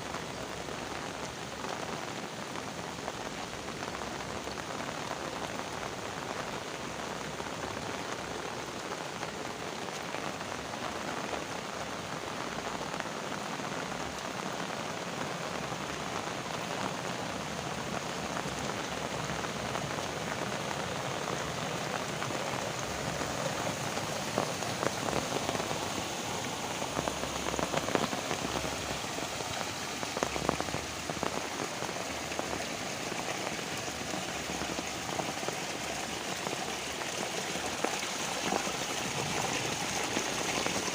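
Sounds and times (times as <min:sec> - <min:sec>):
heavy rain falling: 0:00.0 - 0:40.9
sharp raindrop impacts: 0:12.4 - 0:40.9.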